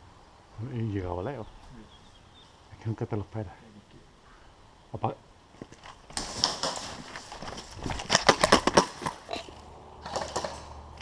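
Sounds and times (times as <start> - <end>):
rustling: 5.4 - 11.0.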